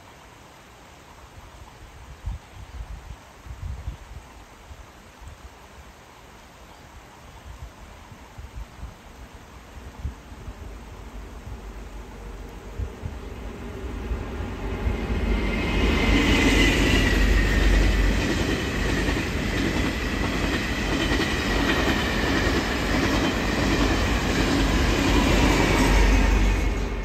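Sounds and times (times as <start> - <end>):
train wheels rumbling on rail: 11.4 - 27.0.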